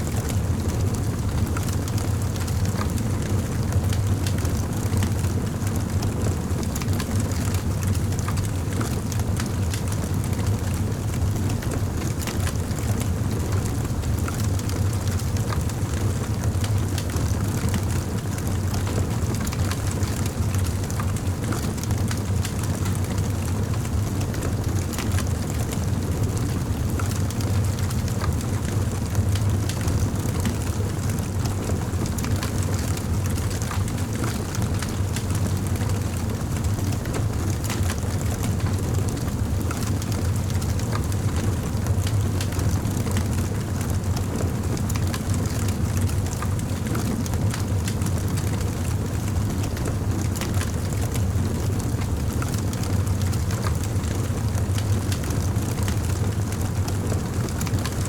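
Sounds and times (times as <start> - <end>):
campfire flames rumbling: 0.1 - 58.0
burning wood crackling and popping: 31.5 - 55.3.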